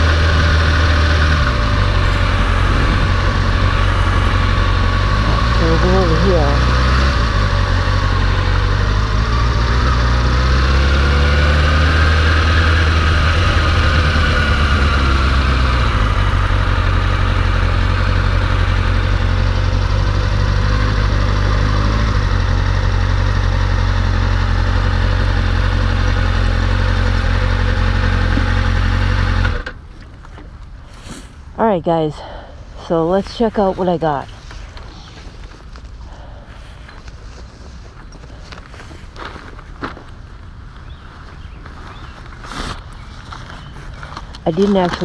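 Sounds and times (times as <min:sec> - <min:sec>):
motorcycle engine droning: 0:00.0 - 0:30.5.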